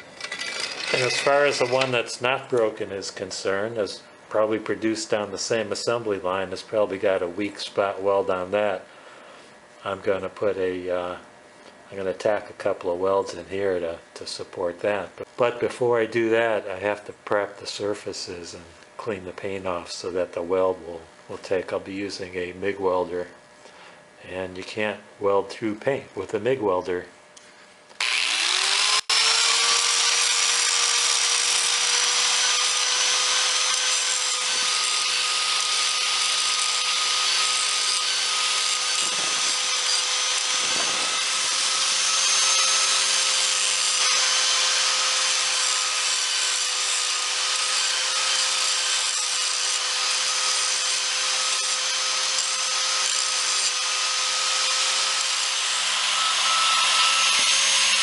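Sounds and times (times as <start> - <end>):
power tool whining: 0.0 - 2.7, 27.9 - 58.0.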